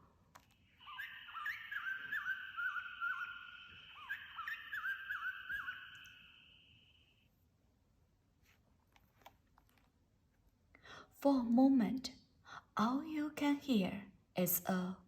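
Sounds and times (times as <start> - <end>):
recorded birdsong chorus: 0.6 - 7.2.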